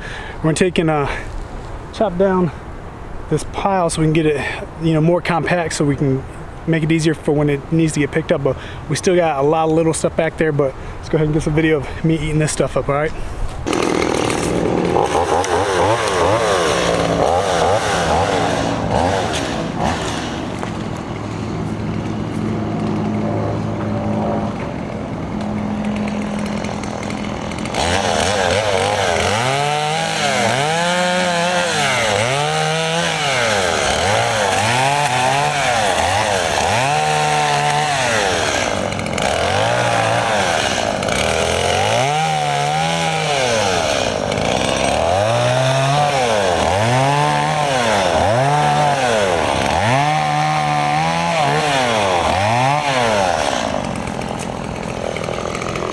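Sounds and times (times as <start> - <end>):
chainsaw idling and revving: 13.6 - 55.9.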